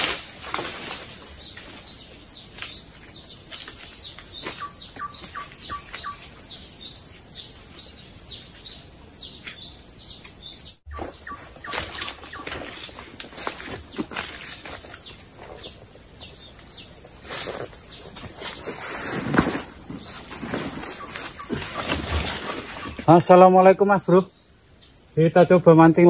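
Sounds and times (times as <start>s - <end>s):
footsteps in dry leaves: 0.0s - 6.6s, 10.9s - 16.0s, 17.0s - 23.1s
bird chirping: 0.8s - 13.1s, 19.8s - 26.0s.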